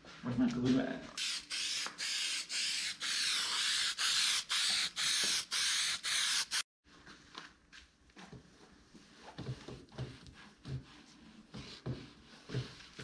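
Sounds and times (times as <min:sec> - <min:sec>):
aerosol spray can hissing: 0:01.2 - 0:06.7.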